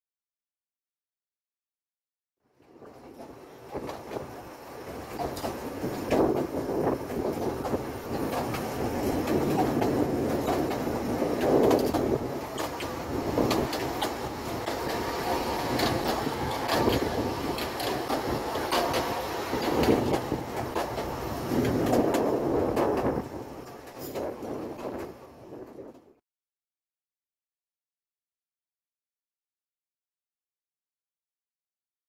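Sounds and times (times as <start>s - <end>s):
train wheels running on track: 2.6s - 26.2s.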